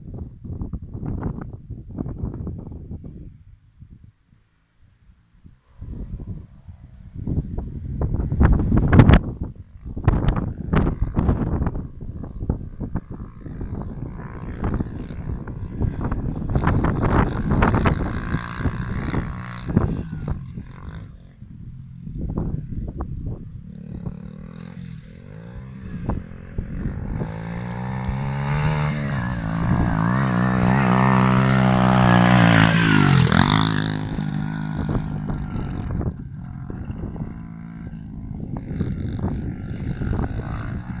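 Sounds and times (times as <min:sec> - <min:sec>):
dirt bike engine revving: 0:23.7 - 0:41.0.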